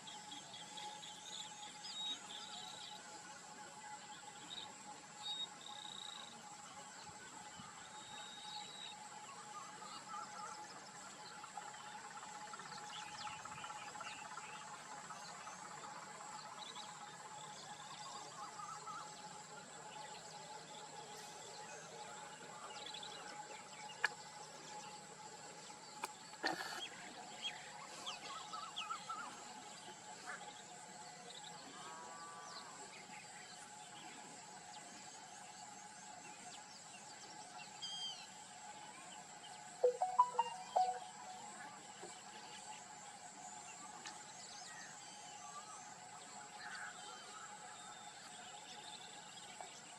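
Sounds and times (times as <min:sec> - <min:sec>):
insects and frogs chorus: 0:00.0 - 0:49.9
short chirps: 0:39.8 - 0:41.4.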